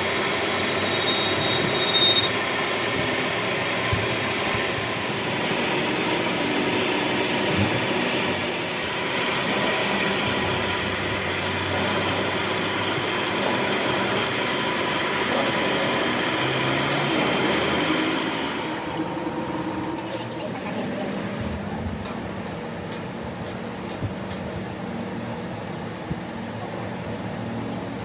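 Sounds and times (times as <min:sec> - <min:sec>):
thin high squeal: 0:00.0 - 0:02.4, 0:08.8 - 0:14.3
machine running with metallic rasp: 0:00.0 - 0:21.4.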